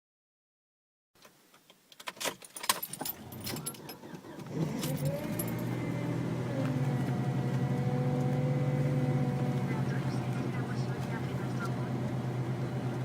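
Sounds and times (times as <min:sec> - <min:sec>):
car keys jingling in ignition: 0:02.0 - 0:05.9
car engine starting and idling: 0:02.7 - 0:13.0.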